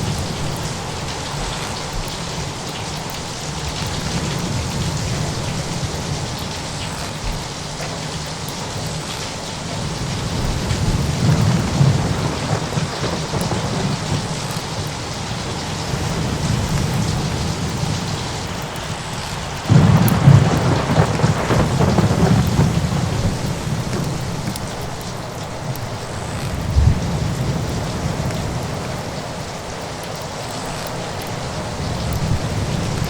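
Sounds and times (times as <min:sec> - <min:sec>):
steady rain: 0:00.0 - 0:33.0
rolling thunder: 0:09.8 - 0:18.7, 0:19.6 - 0:29.2
loud thunderclap: 0:10.3 - 0:14.8, 0:19.7 - 0:24.9.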